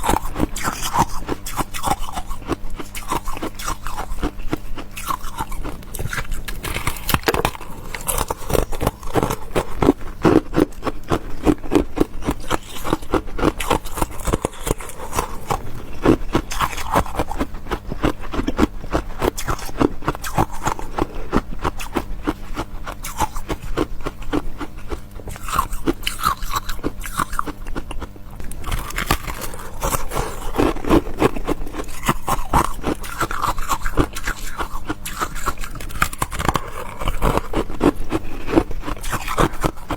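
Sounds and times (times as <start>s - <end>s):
chewing crisp food: 0.0s - 39.9s.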